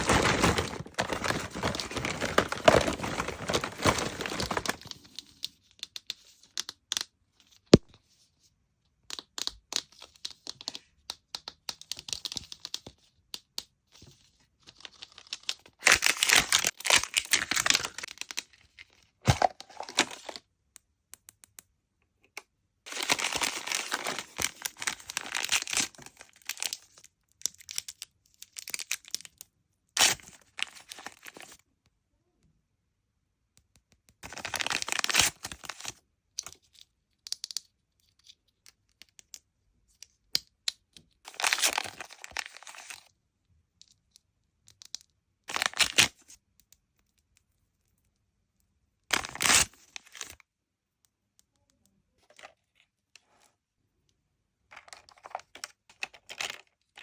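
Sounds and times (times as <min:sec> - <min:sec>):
plastic wrapping crinkling and tearing: 0:00.0 - 0:05.0, 0:14.9 - 0:18.5, 0:19.3 - 0:20.4, 0:22.9 - 0:27.0, 0:34.2 - 0:35.9, 0:41.3 - 0:43.0, 0:45.5 - 0:46.1, 0:49.1 - 0:50.3, 0:54.8 - 0:57.0
small plastic clicks and taps: 0:09.0 - 0:13.8, 0:20.7 - 0:22.5, 0:36.4 - 0:41.2, 0:43.8 - 0:45.2.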